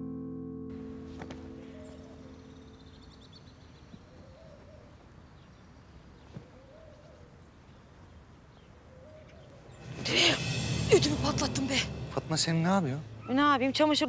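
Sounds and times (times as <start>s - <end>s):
faint birds chirping: 0.8s - 14.0s
lower wavering bird calls: 1.5s - 10.4s, 13.0s - 14.0s.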